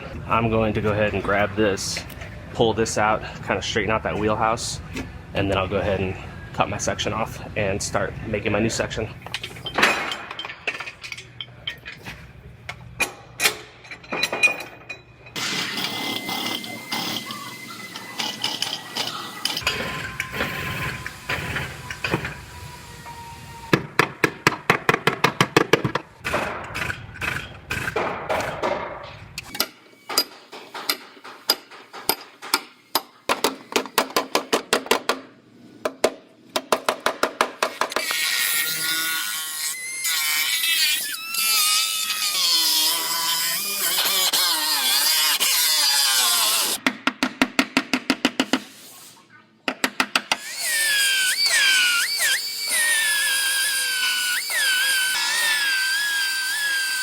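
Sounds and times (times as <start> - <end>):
power tool cutting whine: 15.4 - 23.7, 50.4 - 57.0.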